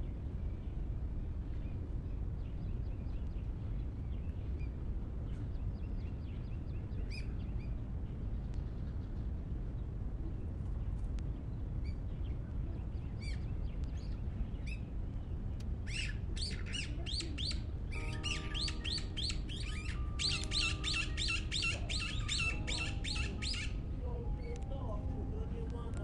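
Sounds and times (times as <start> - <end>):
low background rumble: 0.0 - 26.0
birds chirping: 11.8 - 26.0
soft background music: 15.7 - 26.0.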